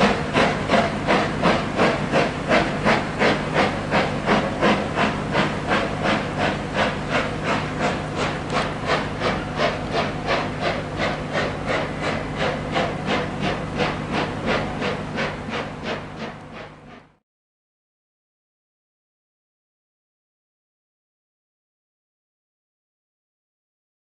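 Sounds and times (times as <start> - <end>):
steam hiss: 0.0 - 17.1
steam locomotive exhaust beats: 0.0 - 17.2.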